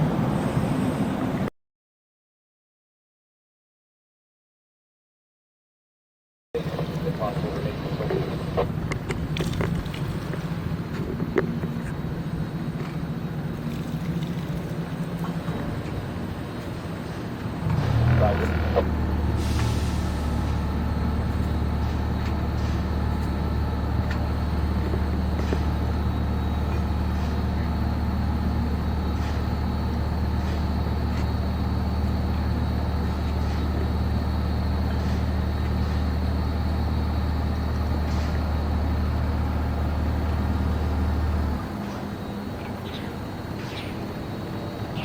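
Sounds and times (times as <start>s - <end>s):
boat engine humming: 6.6s - 45.0s.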